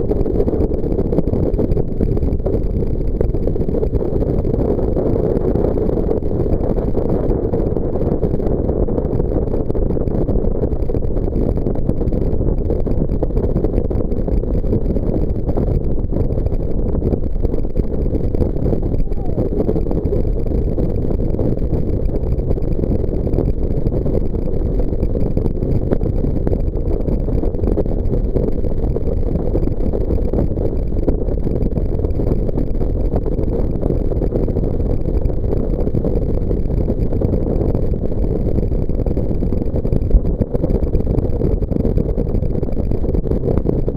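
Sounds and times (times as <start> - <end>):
water noise: 11.3 - 28.5.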